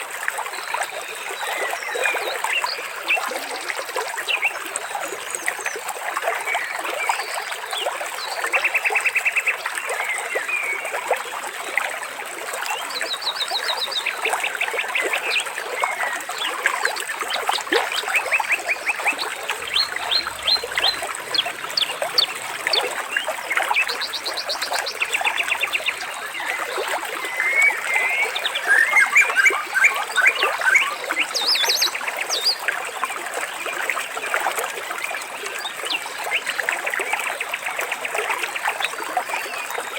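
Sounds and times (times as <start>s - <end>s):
water trickling: 9.6s - 39.9s
birds chirping and trilling: 17.4s - 32.6s.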